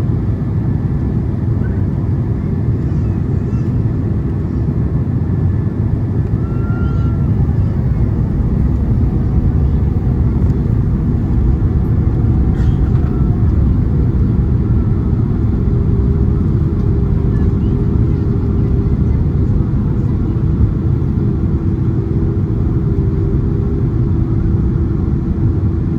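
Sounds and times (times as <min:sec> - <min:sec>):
airplane cabin engine rumble: 0:00.0 - 0:25.9.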